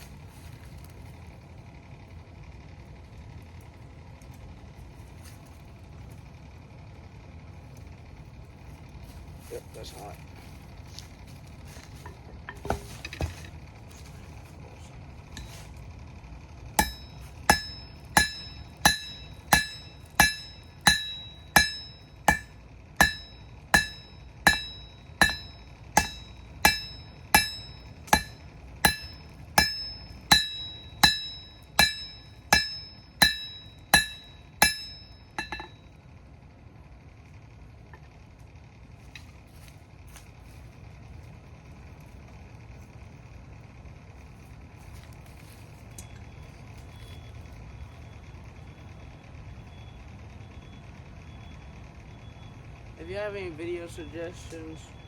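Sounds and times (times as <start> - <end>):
hammer striking metal on anvil: 16.8 - 35.8.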